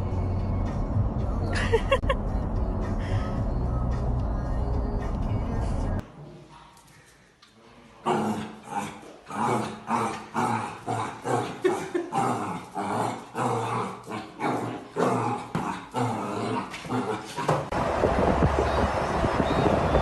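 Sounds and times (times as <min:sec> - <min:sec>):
dog growling and barking: 0:08.1 - 0:17.7.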